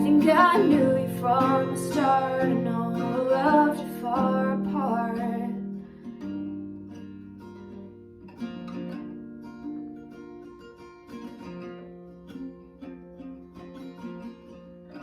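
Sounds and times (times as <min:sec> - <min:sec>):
person singing: 0:00.0 - 0:05.6
acoustic guitar strumming: 0:00.0 - 0:15.0.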